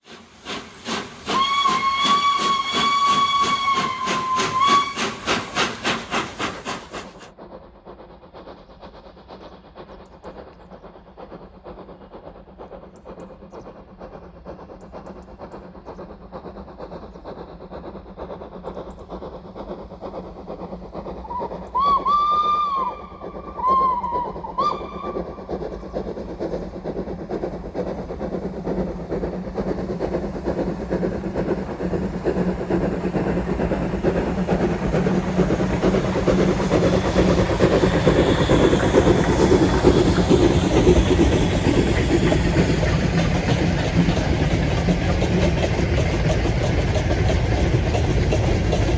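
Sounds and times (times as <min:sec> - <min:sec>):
train running and rumbling: 0:00.0 - 0:48.9
steam locomotive whistle: 0:00.1 - 0:07.2, 0:21.3 - 0:25.4.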